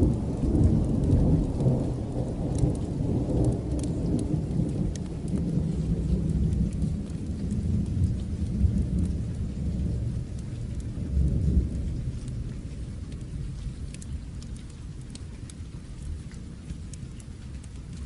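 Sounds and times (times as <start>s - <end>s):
low rolling thunder: 0.0s - 15.2s
steady rain: 0.0s - 18.0s
small sharp ticks: 2.4s - 5.6s, 12.0s - 18.0s.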